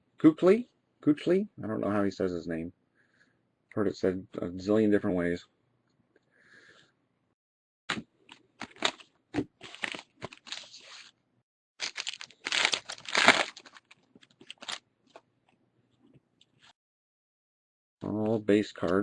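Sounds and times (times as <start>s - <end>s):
plastic wrapper tearing and crinkling: 8.6s - 9.0s, 9.6s - 11.1s, 11.8s - 14.8s.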